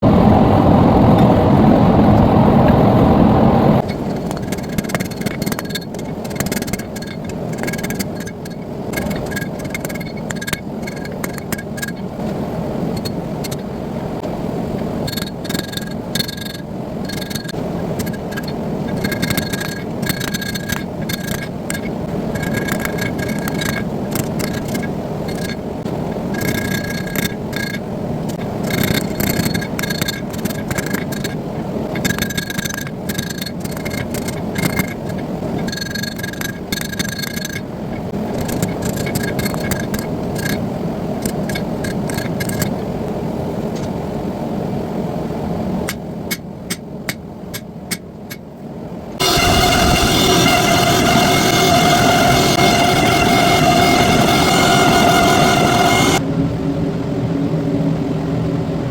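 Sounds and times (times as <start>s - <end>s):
steady roaring rush: 0.0s - 36.7s, 49.2s - 58.9s
metal clicking and ringing: 3.8s - 12.1s, 15.0s - 25.6s, 26.3s - 37.7s, 38.3s - 40.6s, 41.2s - 42.8s
low rumble: 49.2s - 58.0s.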